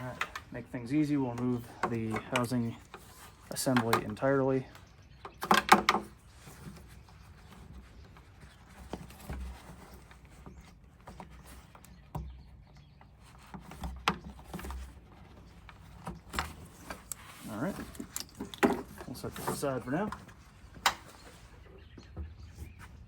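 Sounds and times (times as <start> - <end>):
plastic clatter: 1.3 - 4.3, 5.2 - 22.7
plastic knocks and clicks: 5.2 - 6.1.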